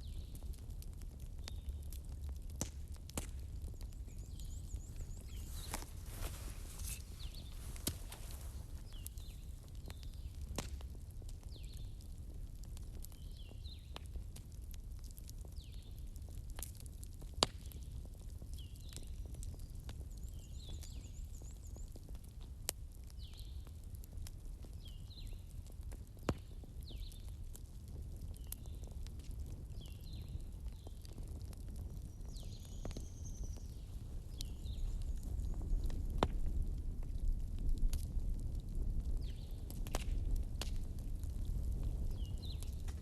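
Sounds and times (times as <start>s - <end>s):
fireplace crackling: 0.2s - 13.2s, 30.3s - 43.0s.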